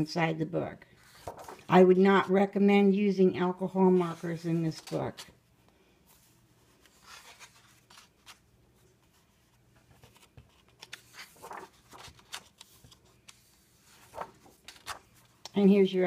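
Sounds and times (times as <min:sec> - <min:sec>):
paper pages rustling and turning: 0:00.9 - 0:01.7, 0:03.9 - 0:05.4, 0:06.1 - 0:16.0.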